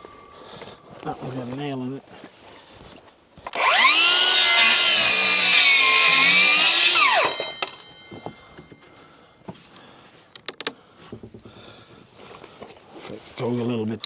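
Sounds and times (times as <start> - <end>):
circular saw cutting wood: 3.5 - 8.4.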